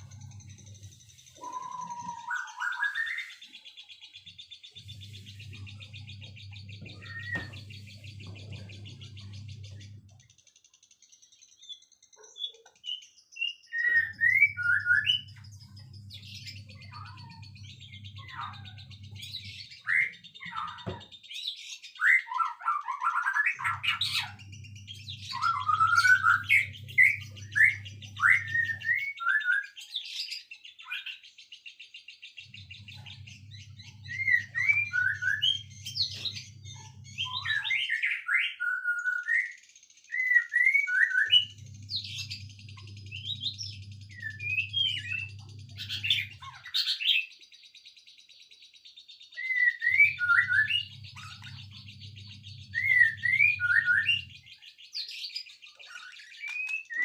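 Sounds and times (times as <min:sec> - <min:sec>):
low hum: 0:00.0 - 0:01.8, 0:04.8 - 0:10.2, 0:23.7 - 0:29.0, 0:32.4 - 0:37.8, 0:41.4 - 0:46.5, 0:50.2 - 0:54.6
songbirds chirping: 0:00.0 - 0:57.0
steady high bird trill: 0:00.0 - 0:57.0.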